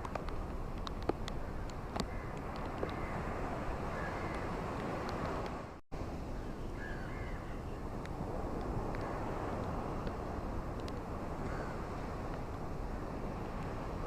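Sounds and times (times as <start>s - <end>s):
ocean surf washing on beach: 0.0s - 14.0s
faint bird calls: 3.9s - 4.5s, 6.4s - 7.8s.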